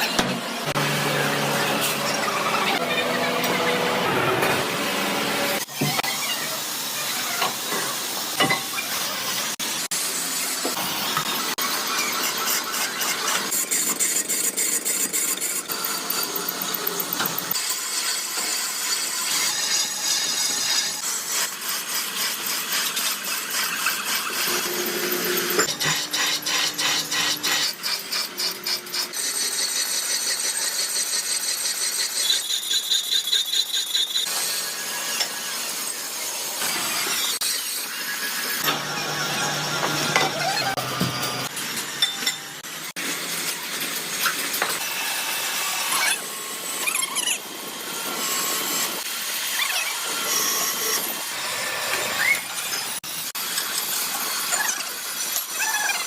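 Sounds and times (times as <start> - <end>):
metal machining and scraping: 0.0 - 56.0.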